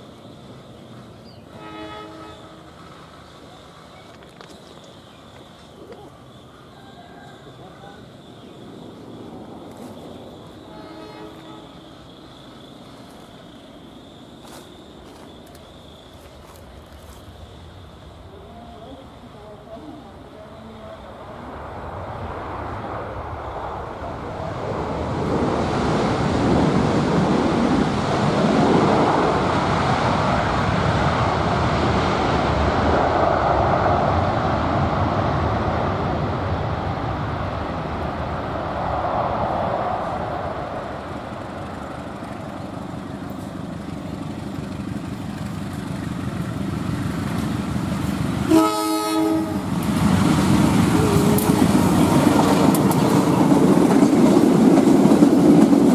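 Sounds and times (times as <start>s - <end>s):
train wheels rumbling on track: 0.0s - 55.9s
train horn blast: 1.5s - 2.7s, 10.6s - 11.9s, 48.5s - 49.7s.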